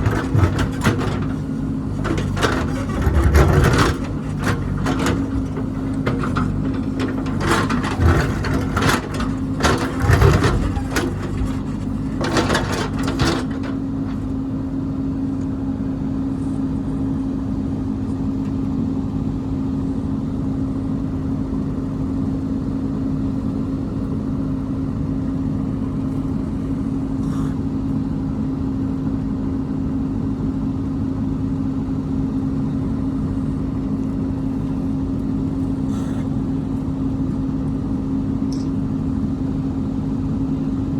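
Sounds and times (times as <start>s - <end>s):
metal clanks and knocks: 0.0s - 14.4s
construction machine engine running: 0.0s - 15.0s.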